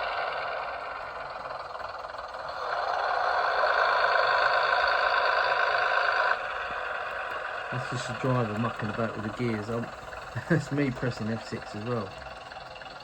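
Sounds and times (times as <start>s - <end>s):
model train diesel engine sound: 0.0s - 13.0s.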